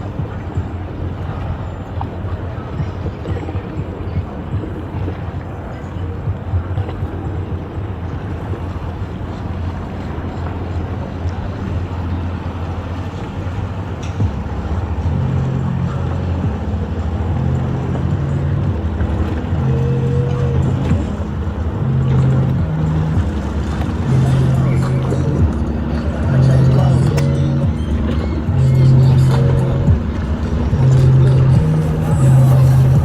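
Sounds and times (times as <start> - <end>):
engine low rumble: 7.9 - 33.0
held stepped tones: 13.7 - 33.0.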